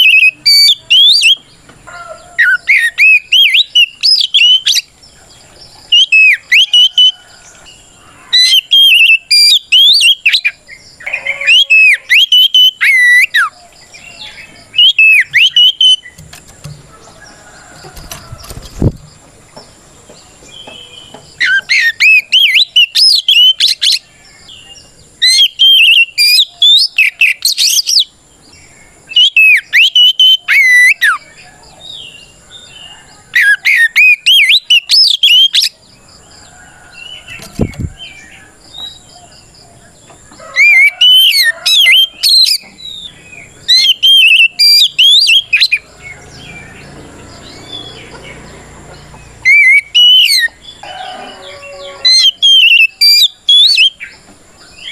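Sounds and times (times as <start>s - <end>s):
magpie-robin singing whistled phrases: 0.0s - 1.5s, 2.4s - 4.9s, 8.4s - 13.5s, 14.1s - 16.2s, 21.4s - 24.0s, 25.2s - 28.1s, 29.1s - 31.2s, 33.4s - 35.8s, 40.6s - 45.8s, 49.4s - 50.6s, 52.1s - 54.2s.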